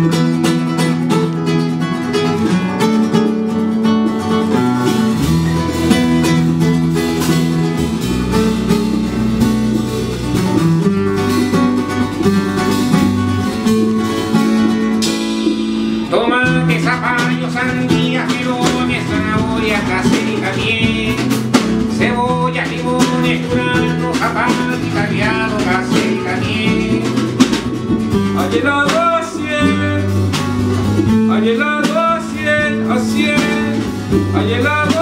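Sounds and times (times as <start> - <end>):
low bass line: 0.0 - 35.0
strummed acoustic guitar: 0.0 - 35.0
person singing: 16.0 - 27.7, 28.3 - 30.4, 31.2 - 35.0.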